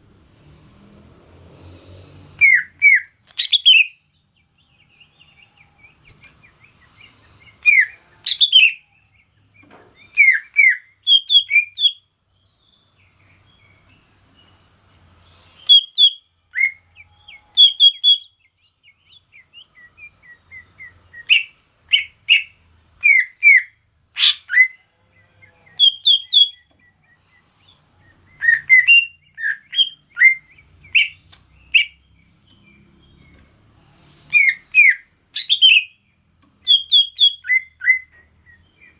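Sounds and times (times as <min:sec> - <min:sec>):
high-pitched hiss: 0:00.0 - 0:02.5
bird whistling and chirping: 0:02.4 - 0:04.0, 0:05.8 - 0:08.8, 0:09.6 - 0:12.0, 0:15.6 - 0:24.8, 0:25.8 - 0:27.3, 0:28.0 - 0:32.0, 0:34.3 - 0:36.0, 0:36.6 - 0:38.9.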